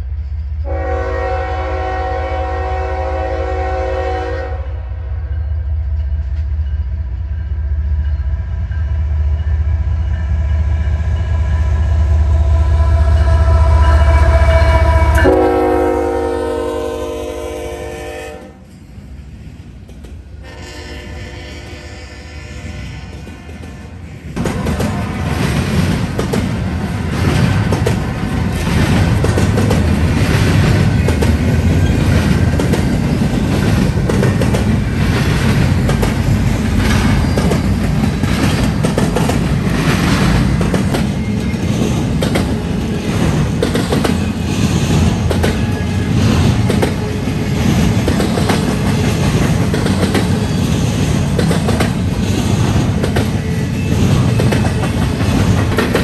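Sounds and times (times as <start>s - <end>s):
freight train rumbling past: 0.0s - 56.0s
wheels clacking over rails: 24.4s - 56.0s.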